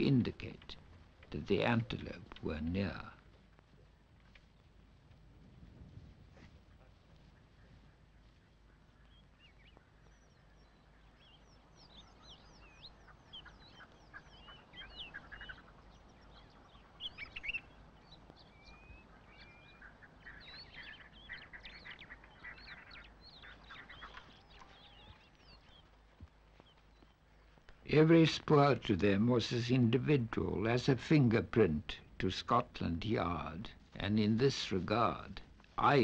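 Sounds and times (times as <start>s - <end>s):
birds chirping and whistling: 7.6s - 28.4s.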